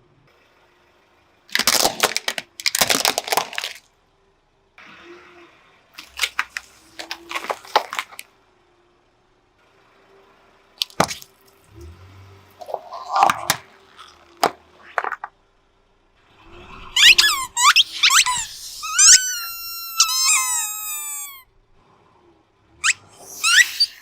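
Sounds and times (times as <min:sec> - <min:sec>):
wet squishing: 0:01.5 - 0:03.8, 0:06.0 - 0:08.2, 0:10.8 - 0:12.0, 0:12.6 - 0:15.2
objects crushed under car tyre: 0:01.5 - 0:03.9, 0:06.0 - 0:08.2, 0:12.6 - 0:15.3.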